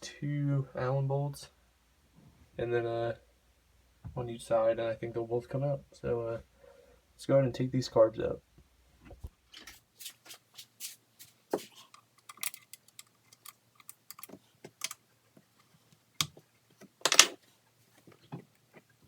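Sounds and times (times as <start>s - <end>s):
hand tools clicking on metal: 11.9s - 15.0s.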